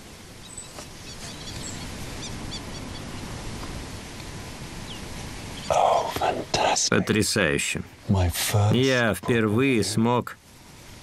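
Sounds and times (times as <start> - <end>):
faint bird chirps: 0.4 - 3.2.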